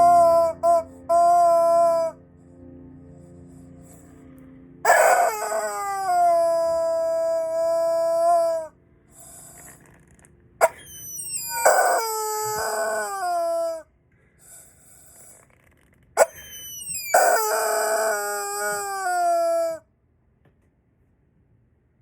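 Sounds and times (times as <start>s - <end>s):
rubber chicken squawking: 0.0s - 2.2s, 4.8s - 9.8s, 10.6s - 13.8s, 16.2s - 19.8s.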